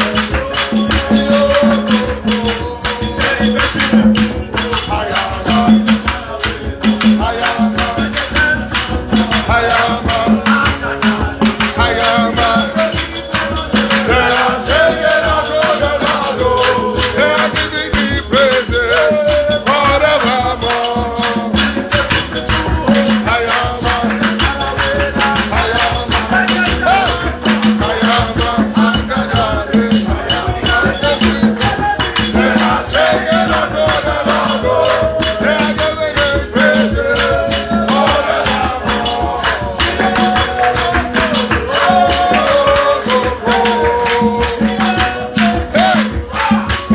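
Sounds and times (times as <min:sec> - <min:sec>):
shaken rattle: 0:00.0 - 0:46.9
worship music: 0:00.0 - 0:46.9.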